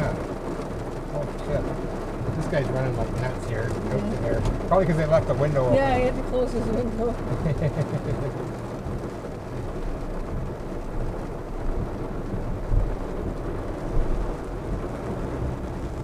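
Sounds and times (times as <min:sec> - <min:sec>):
heavy rain drumming on car roof: 0:00.0 - 0:16.0
tyres rumbling on wet road: 0:00.0 - 0:16.0.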